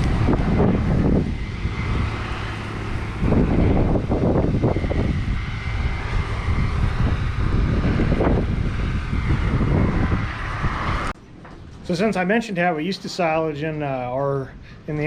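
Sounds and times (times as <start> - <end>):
heavy machinery engine running: 0.0 - 11.9.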